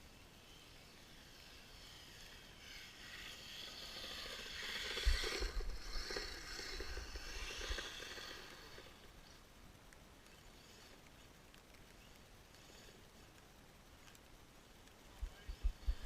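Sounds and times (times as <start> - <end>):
electric motor whine: 0.4 - 9.1.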